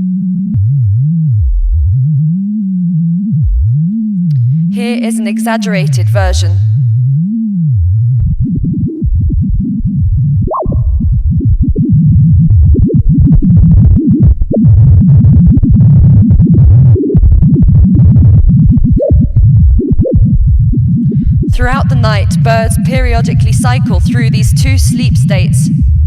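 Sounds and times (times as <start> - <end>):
fluctuating low electronic sound: 0.0 - 26.0.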